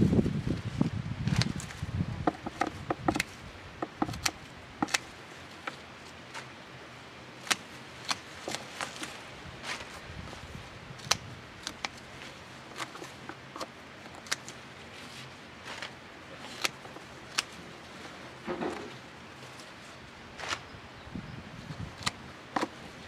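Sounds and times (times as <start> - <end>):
sharp knocks and clicks: 2.2 - 5.0.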